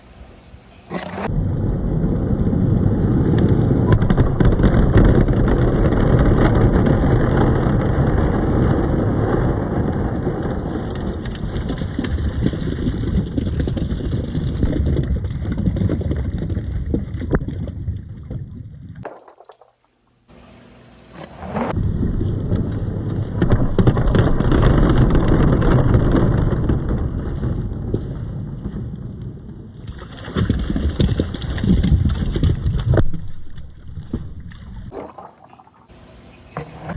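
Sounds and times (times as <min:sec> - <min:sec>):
balls rolling on wooden track: 0:19.1 - 0:20.0.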